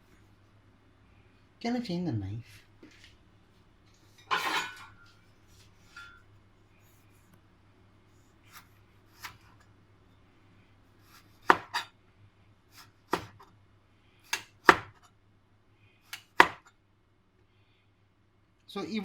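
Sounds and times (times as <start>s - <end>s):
knife striking cutting board: 11.1s - 11.9s, 12.8s - 13.5s, 14.3s - 15.1s, 16.1s - 16.7s.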